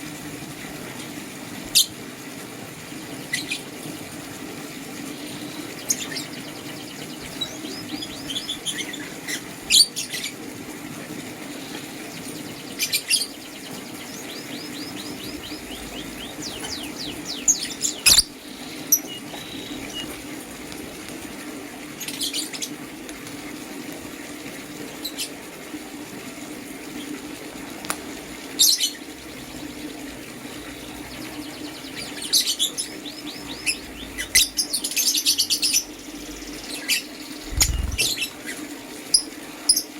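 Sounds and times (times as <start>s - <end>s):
birds twittering: 4.6s - 10.4s, 11.2s - 21.4s, 28.3s - 39.9s
birds chirping: 4.8s - 10.4s, 11.3s - 21.4s, 28.3s - 38.6s
steady low hum: 11.8s - 21.0s, 32.9s - 38.4s.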